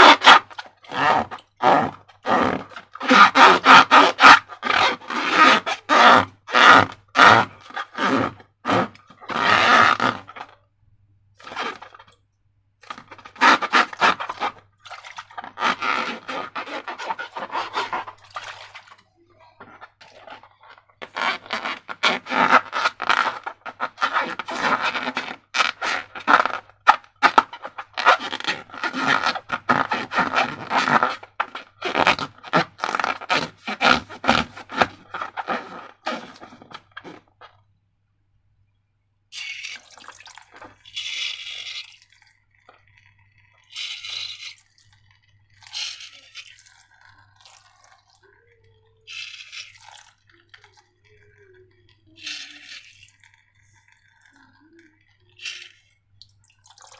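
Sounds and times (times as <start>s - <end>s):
slime squelching: 0.0s - 10.6s, 11.4s - 37.7s, 39.3s - 56.9s.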